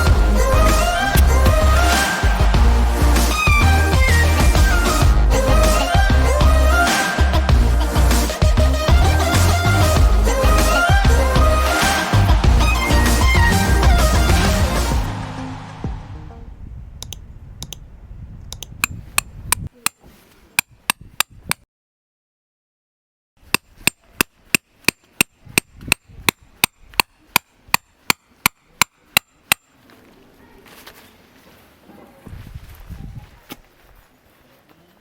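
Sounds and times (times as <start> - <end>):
background music: 0.0 - 16.6
hammer blows: 0.0 - 16.7.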